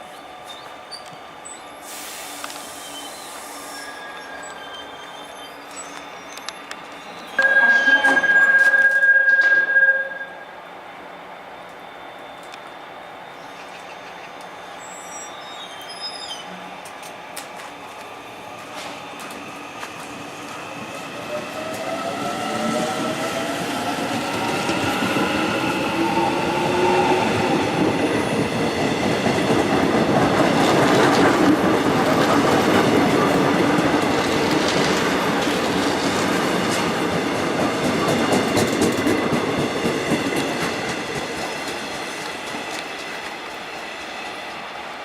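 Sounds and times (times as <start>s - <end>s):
train passing: 0.0s - 15.7s, 16.4s - 45.0s
tones rising in pitch: 7.4s - 10.5s.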